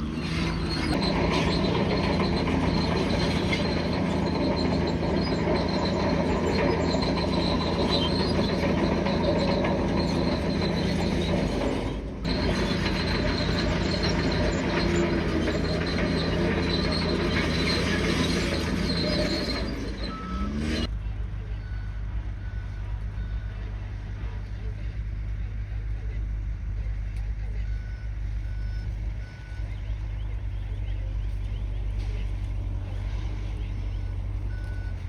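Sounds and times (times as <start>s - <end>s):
steel tracks clattering and squealing: 0.0s - 20.9s
diesel engine running: 0.0s - 35.0s.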